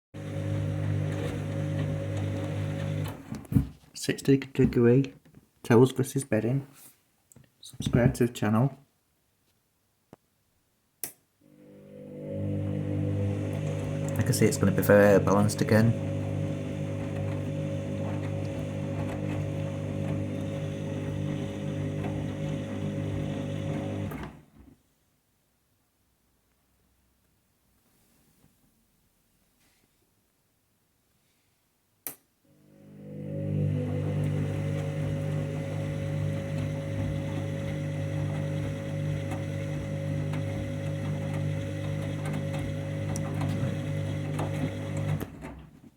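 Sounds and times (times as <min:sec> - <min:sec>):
washing machine drum spinning: 0:00.2 - 0:03.3, 0:12.2 - 0:24.4, 0:33.0 - 0:45.7.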